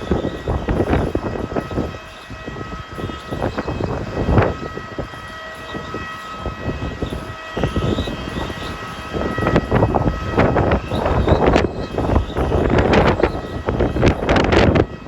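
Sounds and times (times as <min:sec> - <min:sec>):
high machine whine: 0:00.0 - 0:15.0
wind buffeting microphone: 0:00.0 - 0:15.0.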